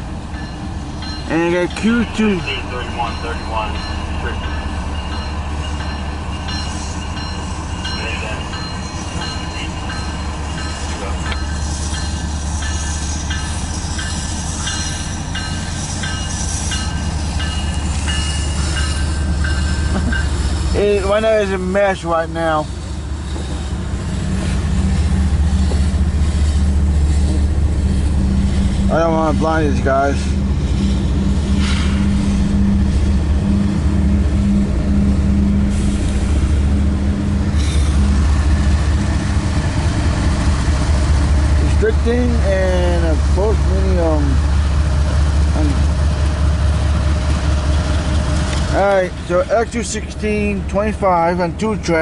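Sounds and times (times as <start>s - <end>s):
diesel locomotives droning: 0.0s - 52.0s
freight train rumbling past: 0.0s - 52.0s
air hissing: 30.7s - 32.5s, 35.6s - 36.6s.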